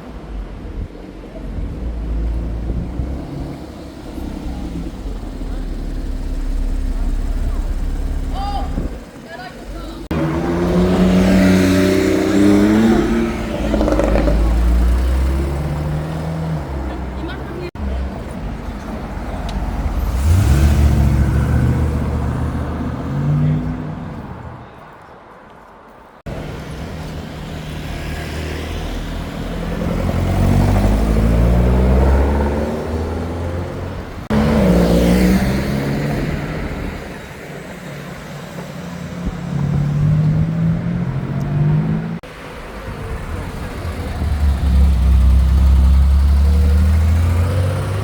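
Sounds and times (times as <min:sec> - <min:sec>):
car engines revving past: 0:10.0 - 0:24.6, 0:26.2 - 0:48.0.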